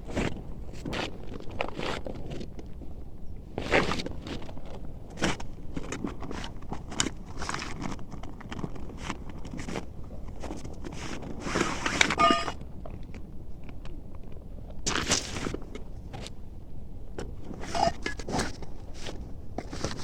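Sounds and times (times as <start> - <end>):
rustling and crunching: 0.0 - 16.4, 17.2 - 20.0
loud scrape: 11.4 - 12.6, 17.6 - 18.4.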